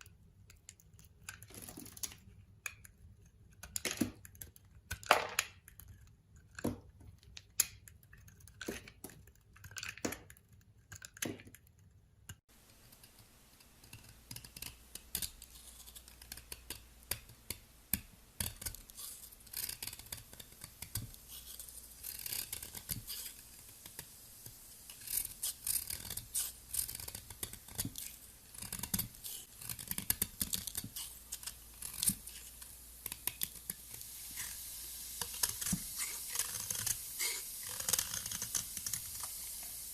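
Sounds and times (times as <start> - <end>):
knife cutting soap: 2.2 - 39.4
fine crackling of slicing soap: 13.9 - 34.6.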